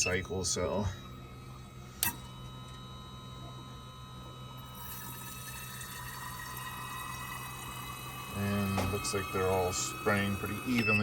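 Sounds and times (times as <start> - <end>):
pump hum: 0.0 - 11.0.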